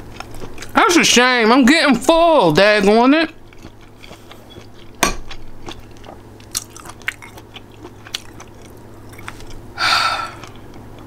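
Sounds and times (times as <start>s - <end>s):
person chewing food: 0.0s - 0.8s, 3.3s - 11.0s.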